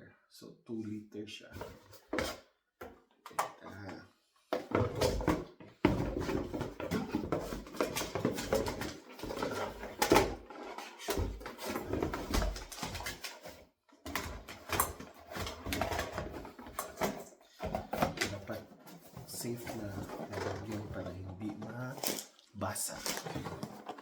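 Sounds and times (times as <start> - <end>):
packaging rustling and crinkling: 5.0 - 24.0.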